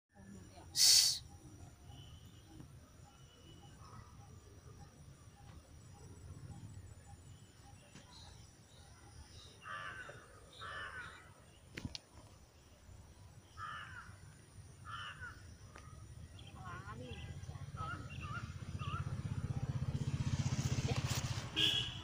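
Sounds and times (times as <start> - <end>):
bird harsh calls: 9.5 - 11.4.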